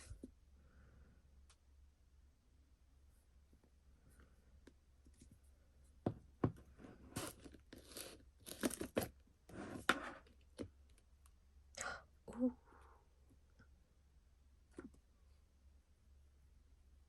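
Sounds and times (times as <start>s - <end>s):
packaging rustling and crinkling: 7.2s - 9.1s.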